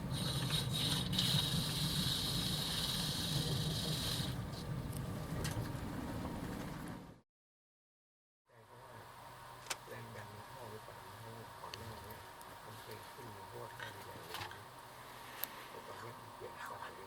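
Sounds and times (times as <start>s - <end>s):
hiss: 0.0s - 4.4s
train carriage rumble: 0.0s - 7.2s.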